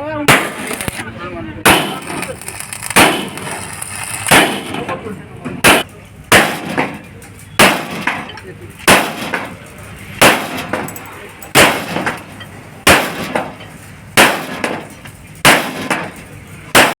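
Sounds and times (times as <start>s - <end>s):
heavy hammer blows on metal: 5.6s - 17.0s.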